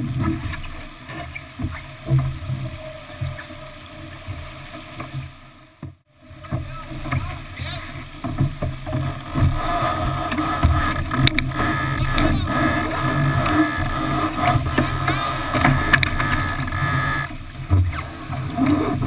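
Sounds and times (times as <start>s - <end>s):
rushing water: 0.0s - 19.0s
wind noise: 8.3s - 19.0s.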